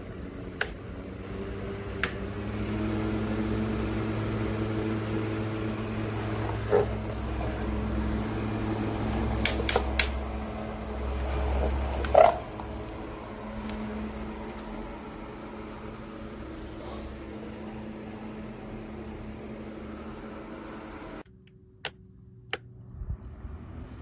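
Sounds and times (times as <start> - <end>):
desk fan humming: 0.0 - 21.4
fan switch clicks: 0.4 - 1.0, 1.6 - 2.4, 9.0 - 10.6.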